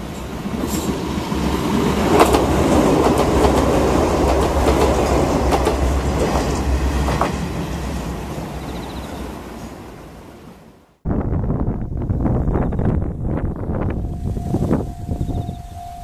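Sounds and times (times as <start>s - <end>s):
wheels clacking over rail joints: 0.0s - 8.2s
train rumble and low hum: 0.0s - 16.0s.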